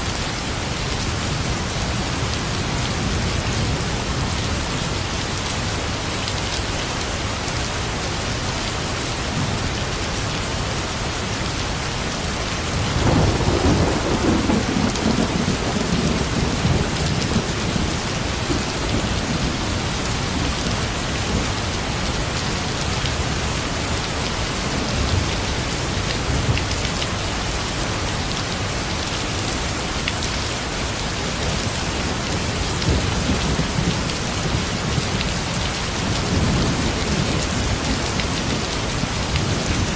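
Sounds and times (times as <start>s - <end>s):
steady rain falling: 0.0s - 39.9s
thunder rumbling: 12.8s - 21.5s.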